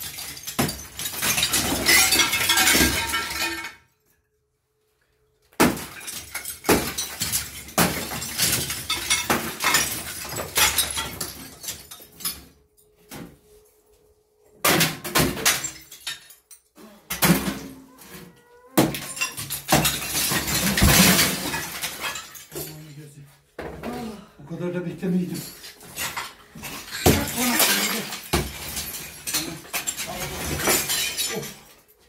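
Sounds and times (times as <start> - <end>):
broken pieces crashing down: 0.0 - 3.8, 5.6 - 12.6, 14.6 - 18.0, 18.8 - 22.8, 25.4 - 31.9
fireplace being smashed: 0.0 - 3.8, 5.6 - 12.6, 14.6 - 16.5, 17.1 - 18.0, 18.8 - 22.8, 25.4 - 31.9.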